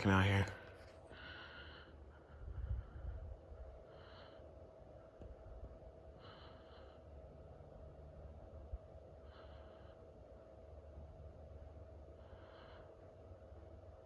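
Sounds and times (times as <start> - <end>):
faint steady hum: 0.0 - 14.0
person breathing: 0.7 - 4.8, 6.0 - 7.4, 9.1 - 10.4, 12.1 - 13.4
low rumble: 2.2 - 3.9.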